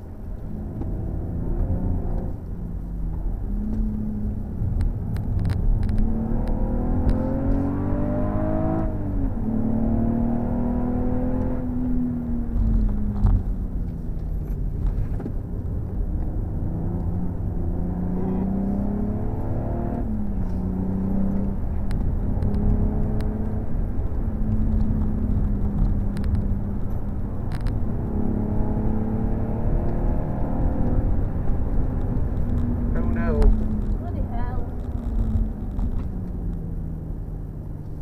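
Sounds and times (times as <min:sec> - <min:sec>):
car engine revving: 0:00.0 - 0:14.6, 0:15.6 - 0:38.0
road and tyre noise: 0:00.0 - 0:38.0.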